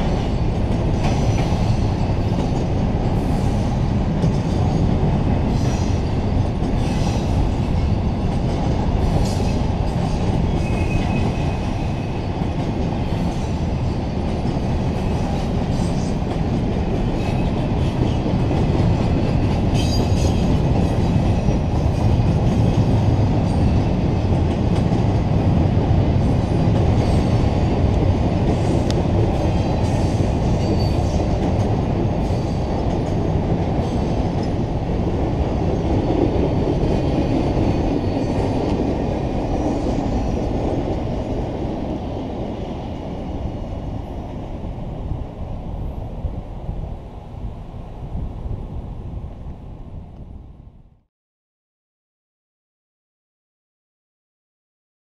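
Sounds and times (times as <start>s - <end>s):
steel wheels rumbling on rail: 0.0s - 50.9s
high wheel squeals: 10.5s - 12.3s.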